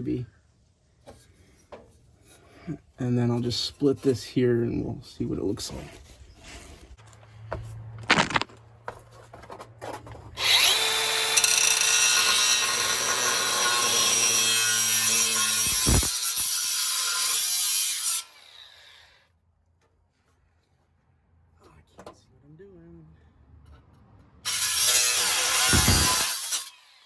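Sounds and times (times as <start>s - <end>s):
power tool cutting pipe: 10.4s - 19.0s, 24.5s - 27.0s.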